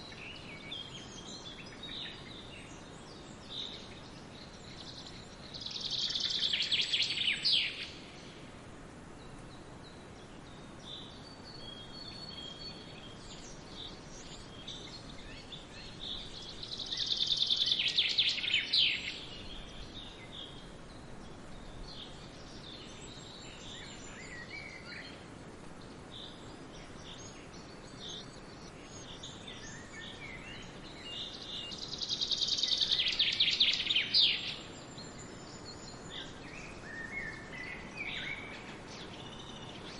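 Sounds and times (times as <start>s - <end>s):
faint hiss of wind or water: 0.0s - 39.9s
birds chirping: 9.2s - 39.9s.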